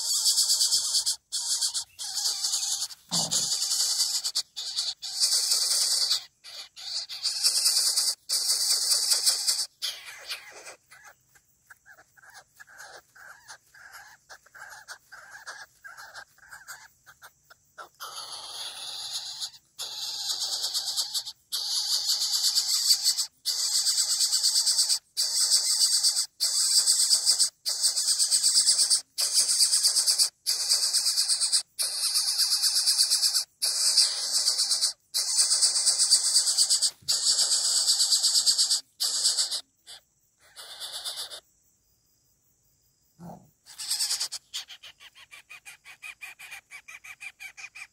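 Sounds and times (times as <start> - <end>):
bird chick hissing: 0.0 - 11.1, 17.8 - 41.5, 43.2 - 45.0.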